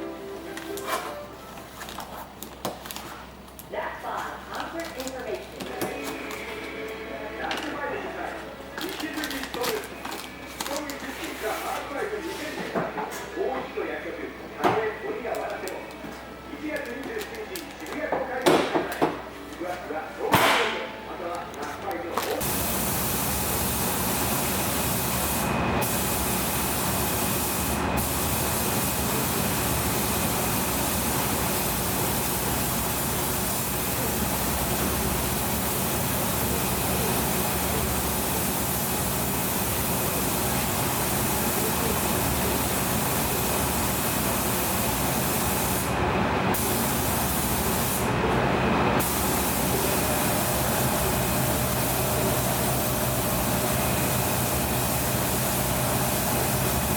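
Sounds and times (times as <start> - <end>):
spray gun hissing: 22.4 - 45.9, 46.5 - 48.0, 49.0 - 56.9.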